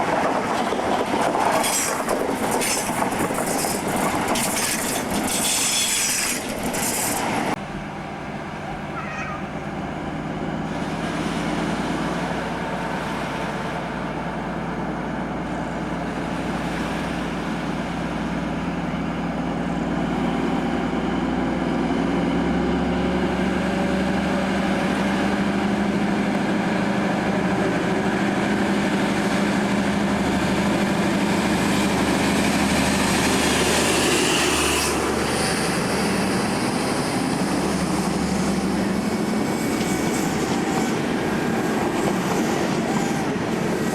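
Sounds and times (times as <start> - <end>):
diesel train engine droning: 0.0 - 43.9.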